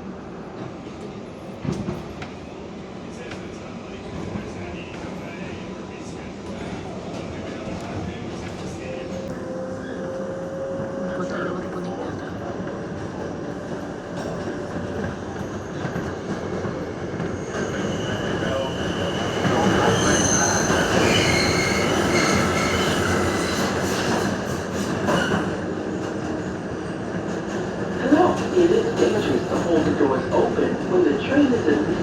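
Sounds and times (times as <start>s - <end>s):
train wheels rumbling on rail: 0.0s - 32.0s
high wheel squeal: 17.4s - 23.9s.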